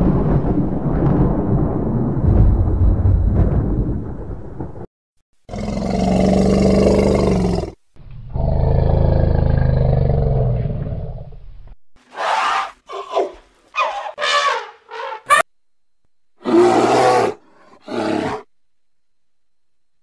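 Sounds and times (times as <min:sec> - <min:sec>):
elephant calling: 0:12.1 - 0:15.4.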